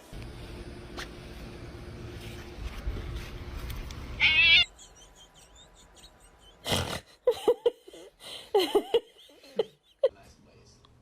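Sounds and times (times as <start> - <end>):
cat meowing: 4.2 - 4.7.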